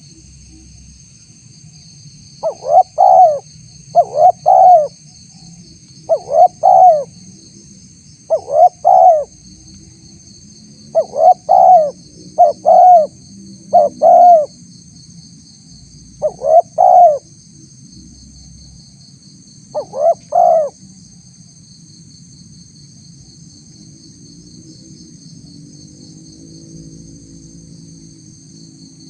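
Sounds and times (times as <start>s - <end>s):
faint high insect trill: 0.0s - 29.0s
dove cooing: 2.4s - 5.0s, 6.0s - 7.1s, 8.3s - 9.4s, 10.9s - 14.6s, 16.2s - 17.3s, 19.7s - 20.8s.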